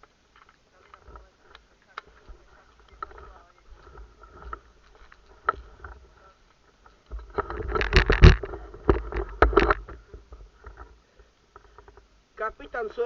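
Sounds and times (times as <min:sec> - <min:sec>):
rustling and knocking: 0:00.0 - 0:12.1.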